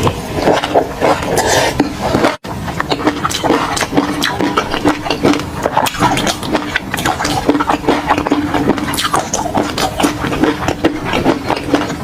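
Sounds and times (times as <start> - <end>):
wet chewing: 0.0 - 12.0
lip smacks: 2.8 - 12.0.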